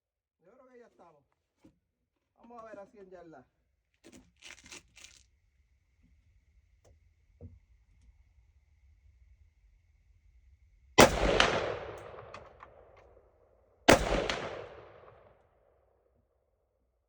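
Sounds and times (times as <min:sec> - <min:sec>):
rifle shots with echo: 0:11.0 - 0:13.1, 0:13.9 - 0:15.4.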